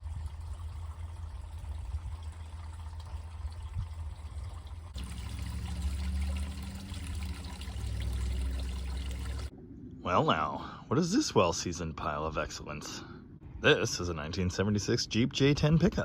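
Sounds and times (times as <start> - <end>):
water trickling: 0.0 - 9.5
low steady hum: 0.0 - 16.0
low steady rumble: 0.0 - 16.0.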